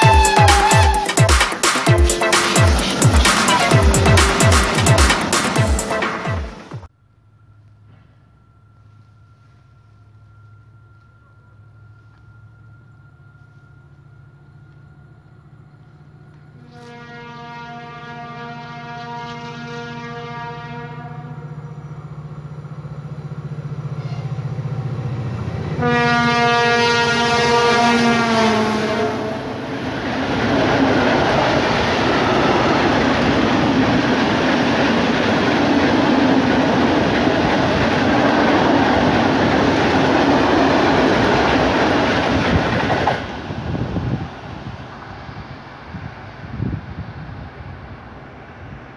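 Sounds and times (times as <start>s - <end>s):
locomotive horn blast: 0.0s - 6.7s, 15.8s - 22.2s, 23.9s - 24.8s, 25.4s - 29.7s
diesel locomotive engine drone: 0.0s - 48.9s
freight wagons rumbling on rails: 0.0s - 48.9s.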